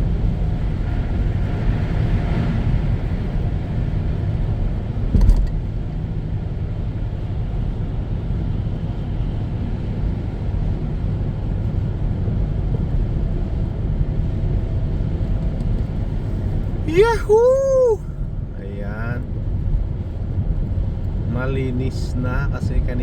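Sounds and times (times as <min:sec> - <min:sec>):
car road and engine rumble: 0:00.0 - 0:23.0
thump: 0:05.1 - 0:05.5.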